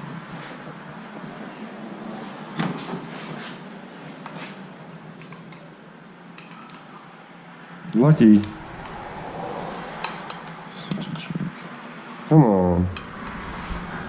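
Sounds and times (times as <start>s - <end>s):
ringing metallic clinks: 4.2s - 5.7s, 6.4s - 7.0s, 10.0s - 11.4s
metal tools clattering: 4.3s - 5.7s, 6.4s - 6.9s.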